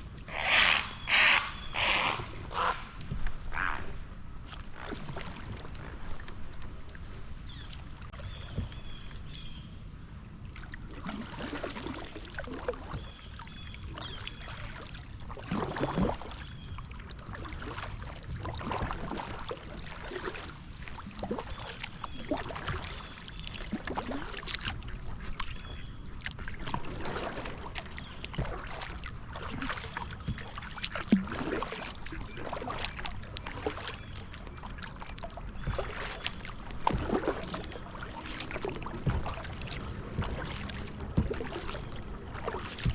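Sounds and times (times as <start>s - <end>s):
paddle strokes through water: 0.0s - 42.9s
water splashes and drips: 0.0s - 42.9s.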